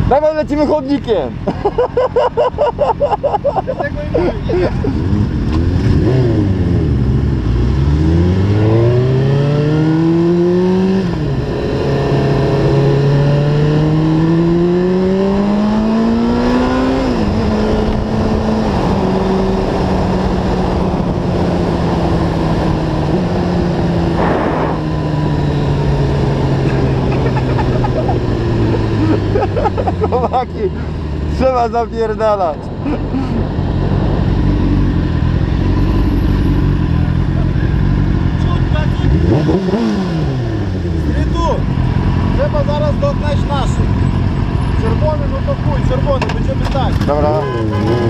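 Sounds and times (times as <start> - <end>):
motorcycle engine accelerating: 4.7 - 48.0.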